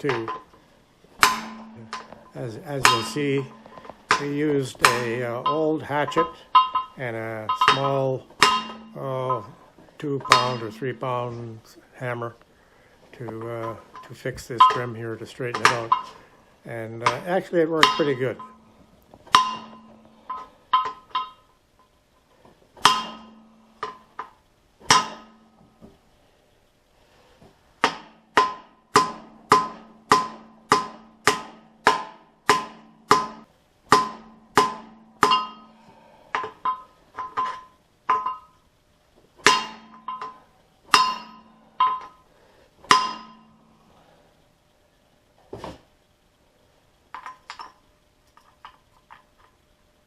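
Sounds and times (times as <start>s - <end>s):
hammer striking metal: 1.2s - 11.4s, 13.4s - 16.3s, 17.0s - 21.4s, 22.8s - 24.3s, 24.9s - 25.7s, 27.8s - 38.6s, 39.4s - 42.2s, 42.9s - 43.8s.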